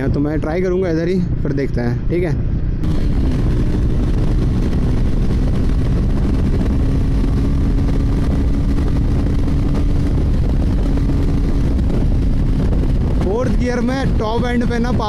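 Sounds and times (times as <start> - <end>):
wind rush over microphone: 0.0 - 15.0
motorcycle engine at high revs: 2.8 - 15.0.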